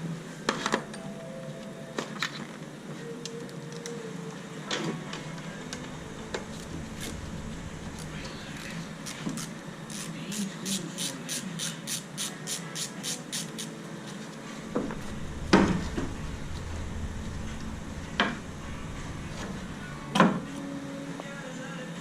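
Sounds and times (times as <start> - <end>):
low hum: 0.9 - 10.0, 14.4 - 21.6.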